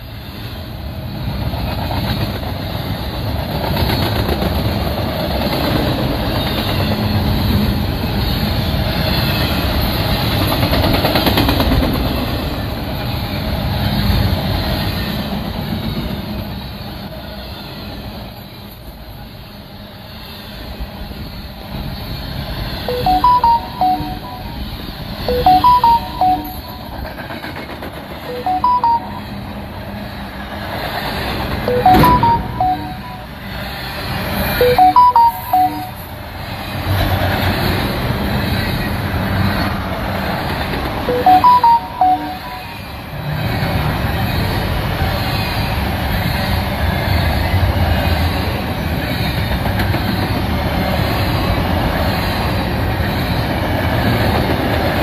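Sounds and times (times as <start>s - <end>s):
short high chirping notes: 22.9s - 27.0s, 28.3s - 29.4s, 31.7s - 33.5s, 34.6s - 36.1s, 41.1s - 42.9s.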